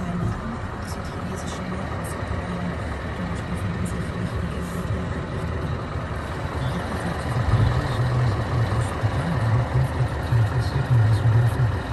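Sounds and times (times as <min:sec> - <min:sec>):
truck diesel engine rumbling: 0:00.0 - 0:11.9.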